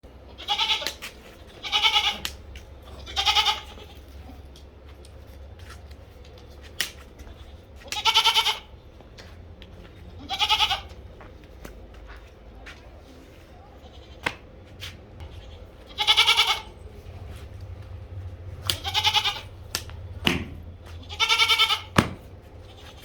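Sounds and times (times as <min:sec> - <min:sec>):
goats bleating: 0:00.3 - 0:04.3, 0:07.3 - 0:08.7, 0:10.2 - 0:11.0, 0:15.2 - 0:20.1, 0:20.8 - 0:23.0.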